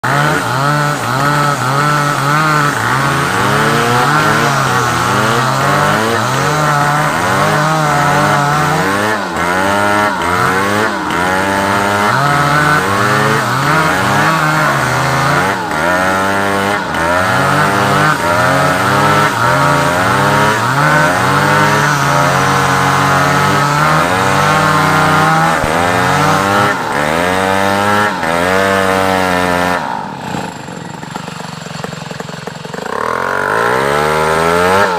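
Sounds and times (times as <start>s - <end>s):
chainsaw cutting log: 0.0s - 34.9s.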